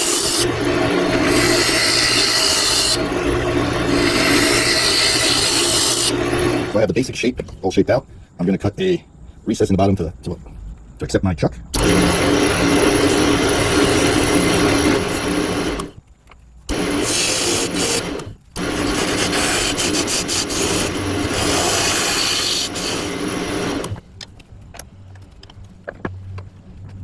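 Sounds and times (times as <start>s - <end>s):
lathe motor hum: 0.0s - 6.8s, 11.8s - 16.0s, 16.7s - 24.0s
lathe tool scraping wood: 0.0s - 6.8s, 11.8s - 16.0s, 16.7s - 24.0s.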